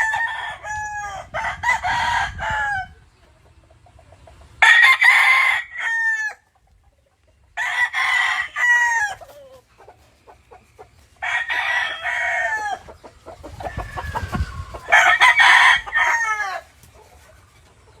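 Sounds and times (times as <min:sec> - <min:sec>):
roosters crowing: 0:00.0 - 0:03.2, 0:04.5 - 0:06.6, 0:07.5 - 0:18.0.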